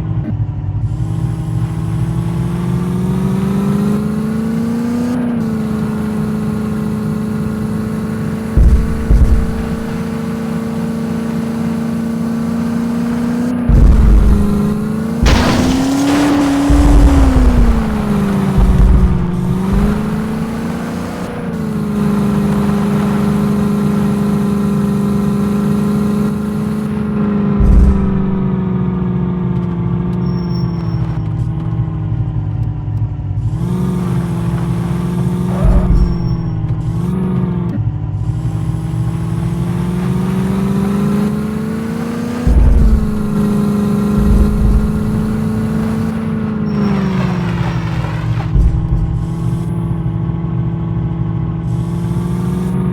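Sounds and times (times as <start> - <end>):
off-road vehicle engine droning: 0.0 - 52.9
low thumps: 8.5 - 11.6, 13.6 - 25.4, 26.6 - 28.8, 33.6 - 37.7, 38.8 - 50.4.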